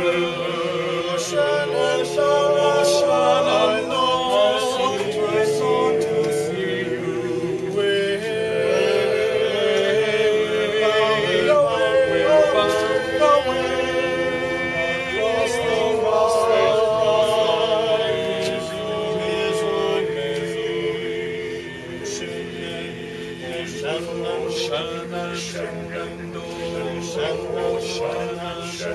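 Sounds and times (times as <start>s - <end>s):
choir singing in harmony: 0.0s - 28.9s.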